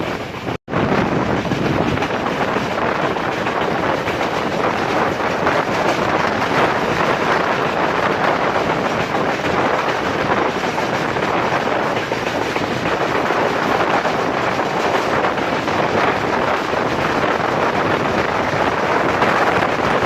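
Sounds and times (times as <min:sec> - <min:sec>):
train rushing noise: 0:00.0 - 0:20.0
wind on microphone: 0:00.0 - 0:20.0.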